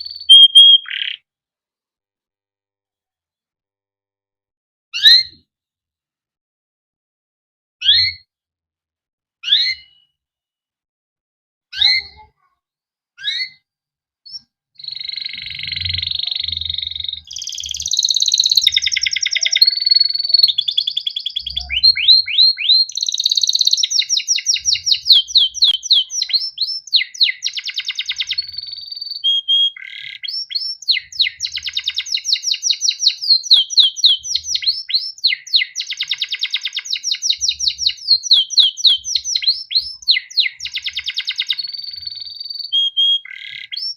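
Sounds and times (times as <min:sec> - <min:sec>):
canary singing trills: 0:00.0 - 0:01.2, 0:14.3 - 0:43.9.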